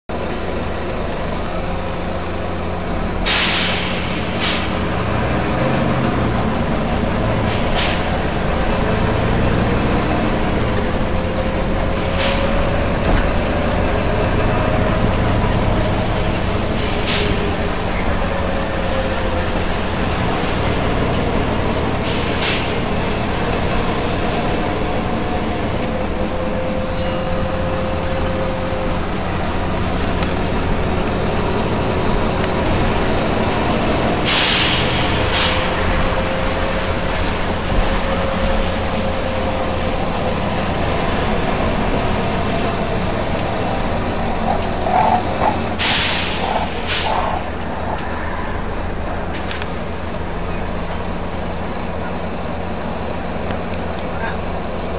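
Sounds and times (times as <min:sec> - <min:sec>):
bus engine running: 0:00.0 - 0:54.9
air brake hisses: 0:03.3 - 0:04.8, 0:07.5 - 0:08.2, 0:12.0 - 0:12.6, 0:16.8 - 0:17.5, 0:22.0 - 0:22.9, 0:34.3 - 0:35.8, 0:45.8 - 0:47.4.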